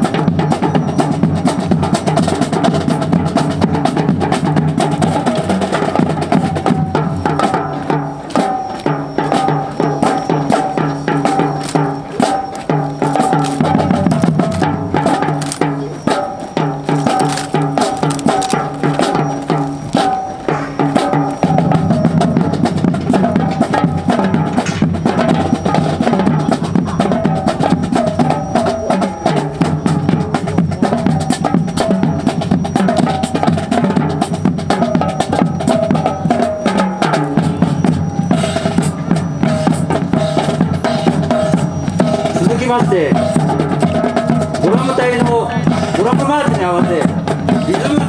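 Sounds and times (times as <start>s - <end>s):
bass drums: 0.0s - 48.0s
snare drums: 0.0s - 48.0s
wood-block-like clicks: 10.1s - 21.6s.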